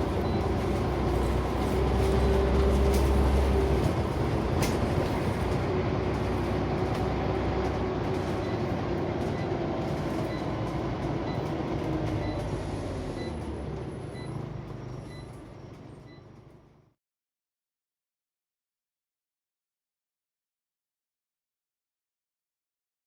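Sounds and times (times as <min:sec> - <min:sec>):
bus diesel engine running: 0:00.0 - 0:17.0
road rumble: 0:00.0 - 0:17.0.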